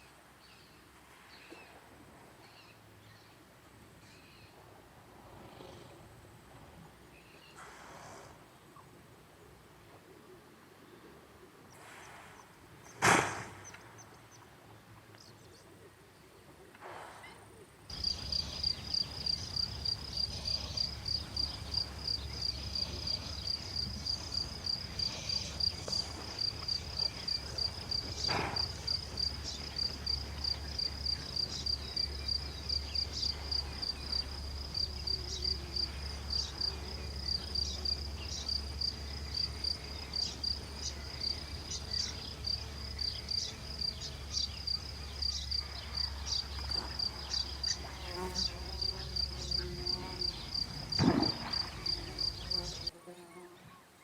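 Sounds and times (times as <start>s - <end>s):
low steady hum: 17.6s - 52.9s
insect chirping: 17.9s - 52.9s.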